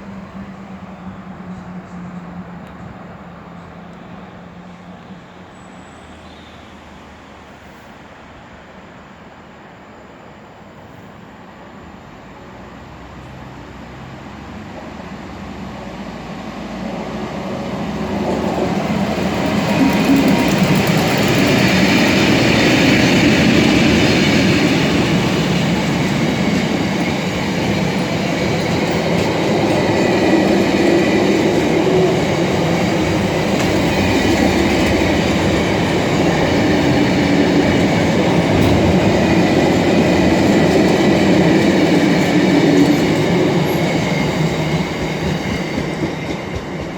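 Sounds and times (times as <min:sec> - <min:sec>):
diesel locomotive engine: 0:00.0 - 0:46.9
train wheels clattering on rails: 0:16.8 - 0:46.9.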